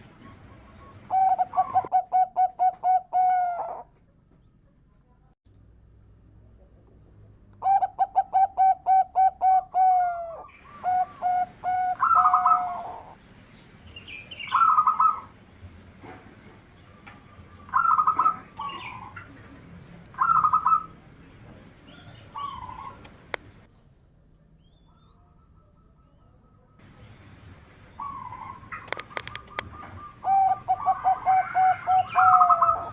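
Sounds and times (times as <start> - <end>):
dove cooing: 0.0 - 3.9, 7.6 - 13.2, 14.4 - 15.3, 17.3 - 19.5, 20.1 - 21.0, 21.8 - 23.3, 28.0 - 32.9.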